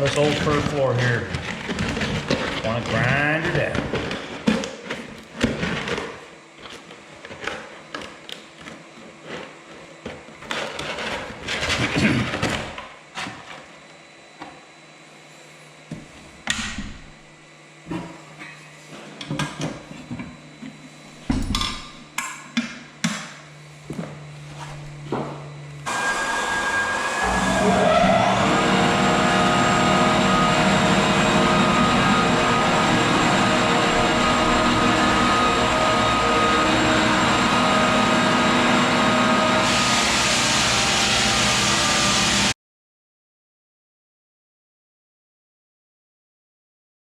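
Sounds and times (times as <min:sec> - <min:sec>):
floor sander running: 0:00.0 - 0:04.1, 0:24.6 - 0:42.6.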